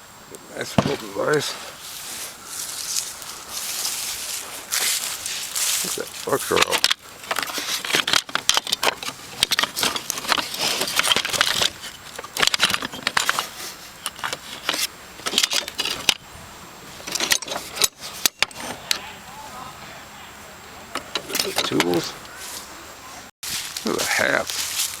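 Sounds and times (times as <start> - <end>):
rapid sharp clicking and rattling: 5.6 - 16.2.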